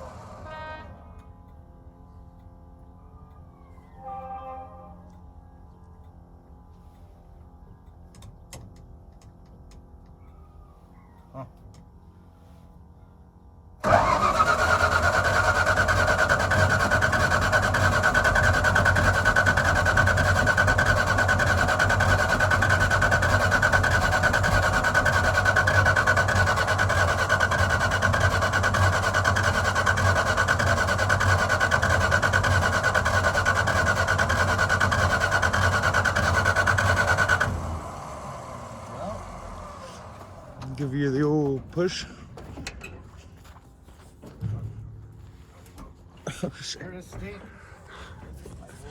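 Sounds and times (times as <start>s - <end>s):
starter motor cranking engine: 13.8s - 40.9s.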